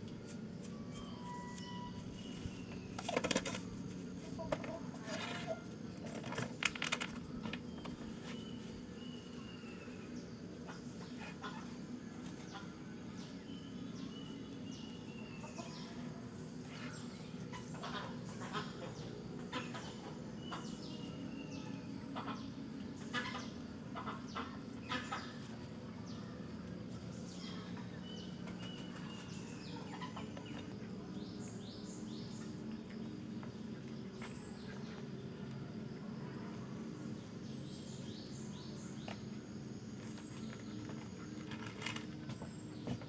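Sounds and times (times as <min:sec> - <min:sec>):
steady low hum: 0:00.0 - 0:43.0
birds chirping and squawking: 0:01.5 - 0:25.5, 0:27.4 - 0:30.8.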